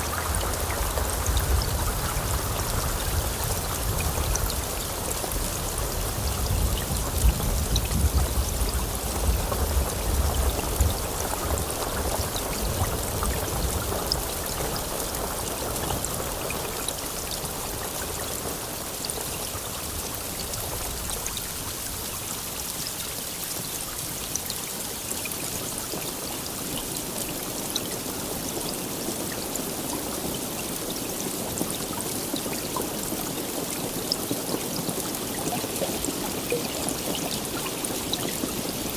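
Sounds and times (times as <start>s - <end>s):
low rumble of thunder: 0.0s - 18.2s
heavy rainfall: 0.0s - 38.9s.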